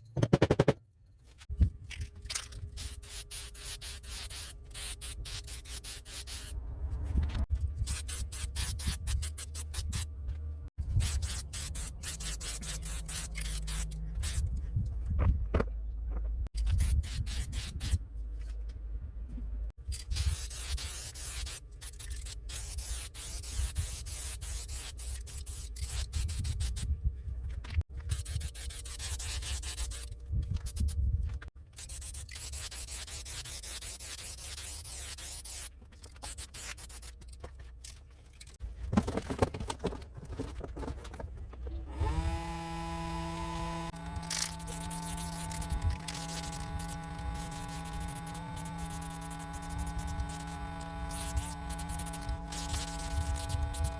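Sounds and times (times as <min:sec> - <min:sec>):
scraping and rubbing: 0:00.0 - 0:18.7, 0:43.9 - 0:53.9
low rumble: 0:06.5 - 0:07.8.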